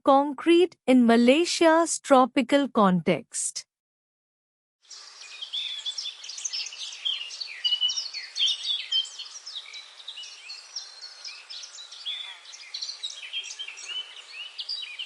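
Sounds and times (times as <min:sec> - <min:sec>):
chorus of birds chirping: 0:04.8 - 0:15.0.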